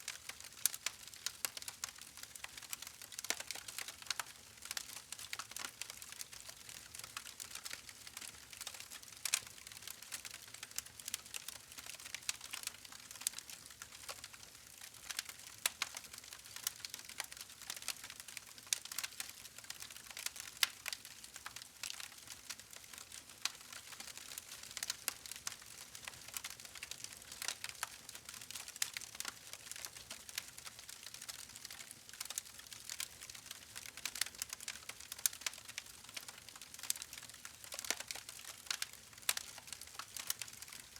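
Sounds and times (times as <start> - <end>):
wood fire crackling and popping: 0.1 - 40.9.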